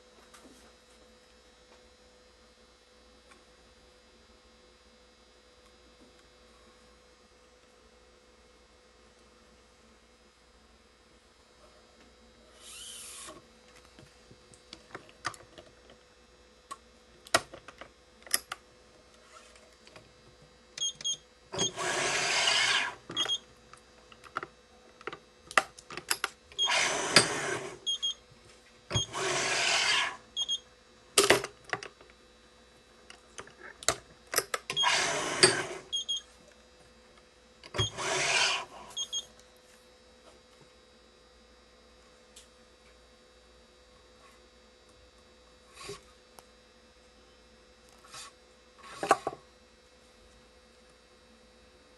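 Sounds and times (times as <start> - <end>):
string pulled through racket holes: 21.6 - 23.0, 26.6 - 27.8, 29.0 - 30.2, 34.7 - 35.9, 37.8 - 38.8.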